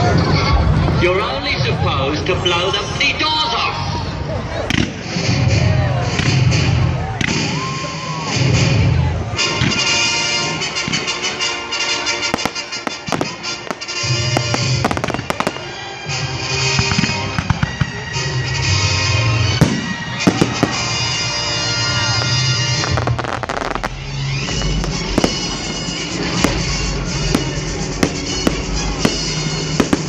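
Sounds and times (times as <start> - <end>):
fireworks bangs and crackles: 4.5 - 30.0
music over loudspeakers: 8.0 - 30.0.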